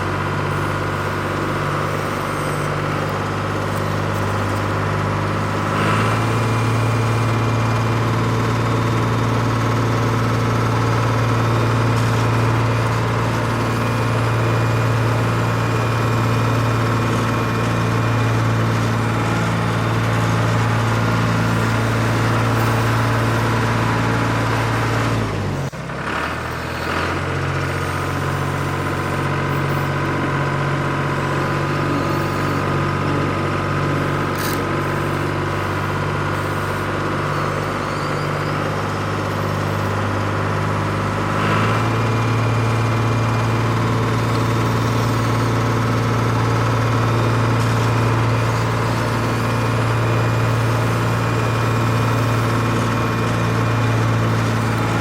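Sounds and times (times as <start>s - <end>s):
model engine running: 0.0s - 55.0s.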